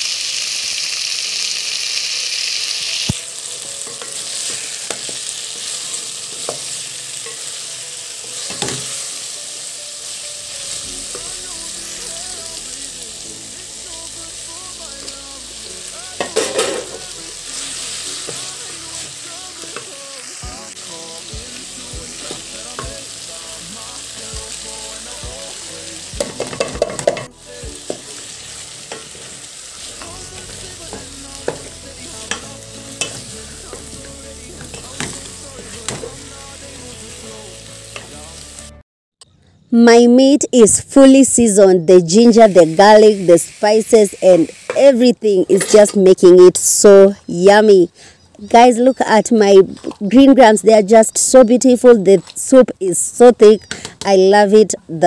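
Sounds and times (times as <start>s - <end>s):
meat sizzling in a pot: 0.0s - 38.8s, 42.0s - 47.1s.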